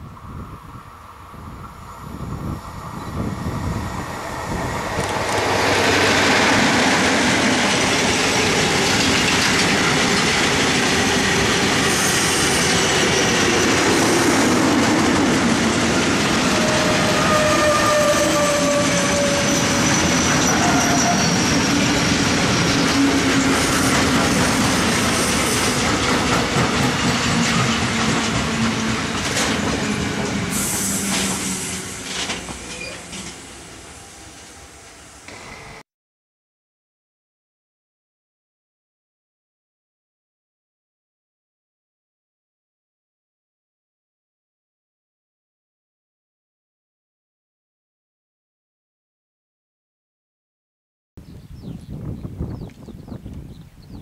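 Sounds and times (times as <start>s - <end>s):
train wheels rolling on rails: 1.5s - 35.8s
brief squealing tones: 16.7s - 21.7s, 30.6s - 33.4s.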